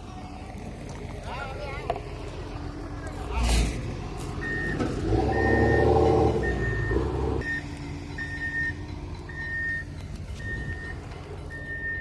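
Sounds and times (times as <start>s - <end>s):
forklift engine running: 0.0s - 12.0s
forklift reversing alarm beeping: 4.4s - 12.0s.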